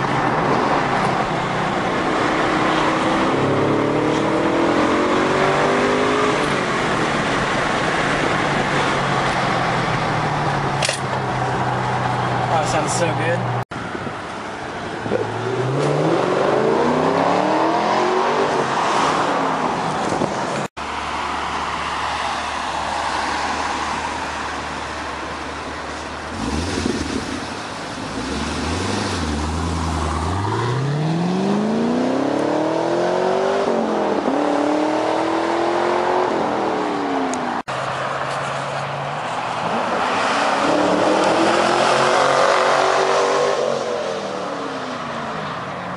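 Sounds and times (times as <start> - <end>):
car engine accelerating: 26.2 - 37.7.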